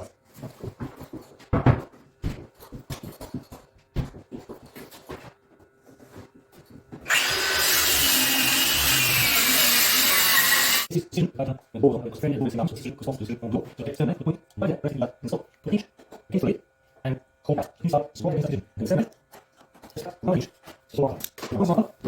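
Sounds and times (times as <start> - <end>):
woodworking power tool running: 7.0 - 10.9.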